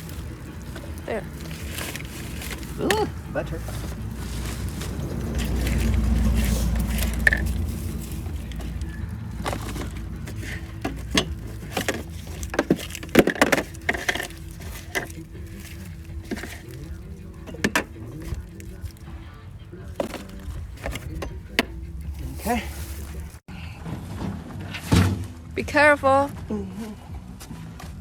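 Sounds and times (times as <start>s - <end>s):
containers knocking and clattering: 0.0s - 23.4s.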